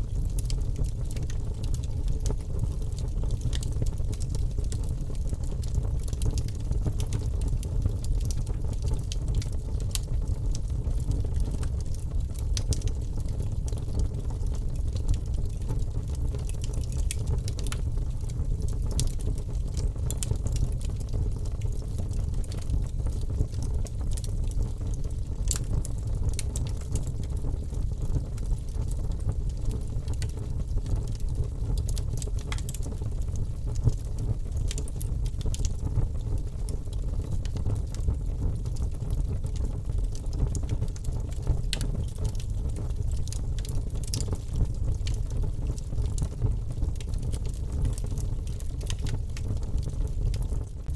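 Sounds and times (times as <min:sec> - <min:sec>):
logs crackling and popping: 0:00.0 - 0:50.9
low rumble of flames: 0:00.0 - 0:50.9.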